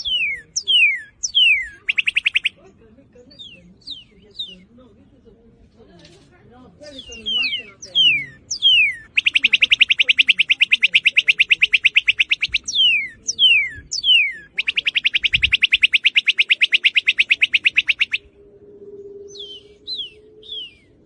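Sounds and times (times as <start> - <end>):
bird downslurred whistles: 0.0 - 2.6, 7.0 - 18.3, 19.0 - 20.9
bird rapid note runs: 0.0 - 2.6, 7.0 - 18.2.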